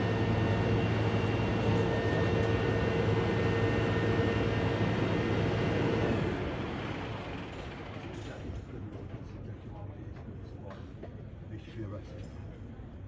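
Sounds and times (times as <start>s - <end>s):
diesel engine running: 0.0s - 8.2s.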